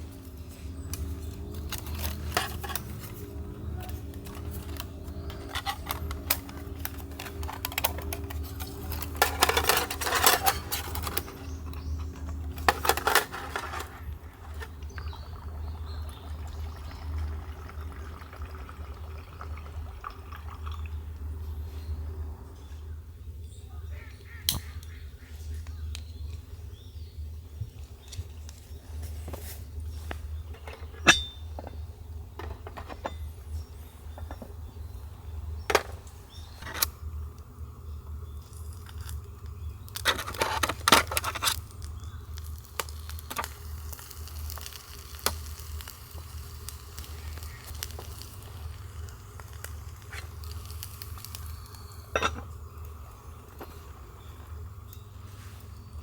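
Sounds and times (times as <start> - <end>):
clicks and clinks of handling: 0.2 - 14.7
clattering: 4.3 - 14.7.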